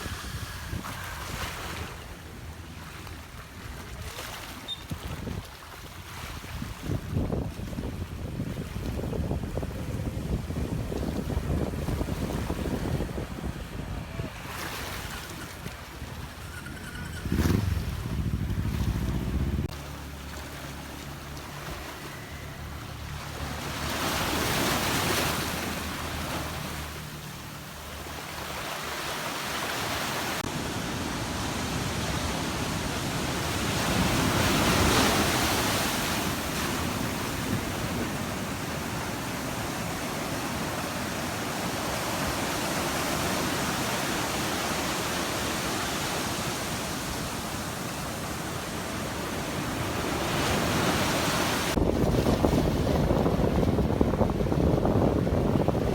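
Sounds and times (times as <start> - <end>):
ocean surf washing onto beach: 0.0 - 4.6, 17.4 - 55.9
wind rumble on microphone: 0.0 - 19.8, 29.8 - 55.9.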